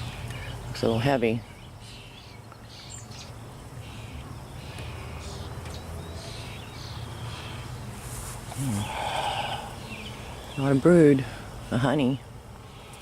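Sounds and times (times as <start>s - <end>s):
honeybees buzzing: 0.0s - 13.0s
soft handling rustles: 7.9s - 8.6s.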